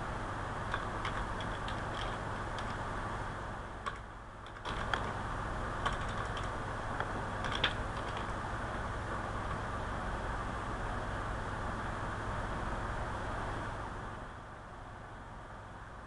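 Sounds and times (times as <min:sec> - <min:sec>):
background hiss and low hum: 0:00.0 - 0:16.0
computer keyboard typing: 0:00.7 - 0:02.8, 0:03.8 - 0:05.2, 0:05.8 - 0:06.6, 0:07.4 - 0:08.4.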